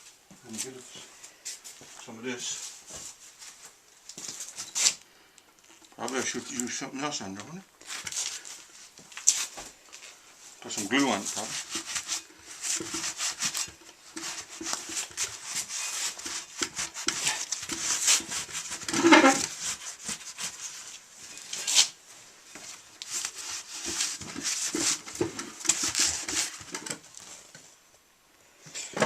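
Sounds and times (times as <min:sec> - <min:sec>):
hands scraping tire and rim: 0:10.8 - 0:22.0, 0:22.6 - 0:27.3.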